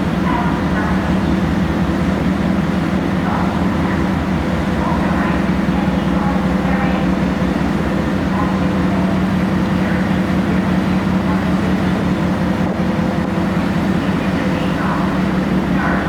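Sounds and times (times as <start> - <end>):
ship engines droning: 0.0 - 16.0.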